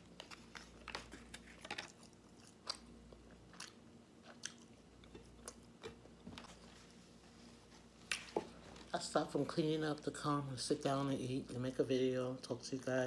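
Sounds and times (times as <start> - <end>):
person chewing crunchy food: 0.0 - 6.7.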